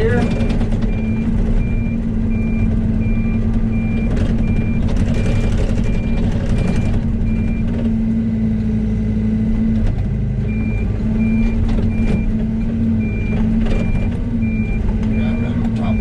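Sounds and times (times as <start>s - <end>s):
travel alarm beeping: 0.0s - 7.7s, 10.5s - 16.0s
excavator diesel engine running: 0.0s - 16.0s.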